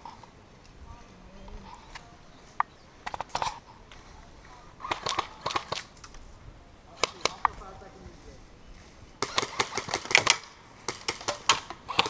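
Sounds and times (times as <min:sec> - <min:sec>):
airsoft guns firing: 0:04.8 - 0:05.9, 0:07.0 - 0:07.6, 0:09.2 - 0:12.0.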